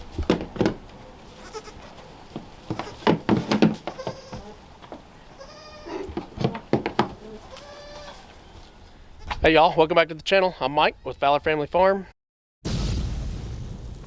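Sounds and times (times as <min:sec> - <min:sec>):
goat kid bleating: 0:01.3 - 0:02.0, 0:02.7 - 0:08.6, 0:09.2 - 0:09.4
sharp knocks and clatter: 0:02.4 - 0:04.2, 0:06.2 - 0:07.2.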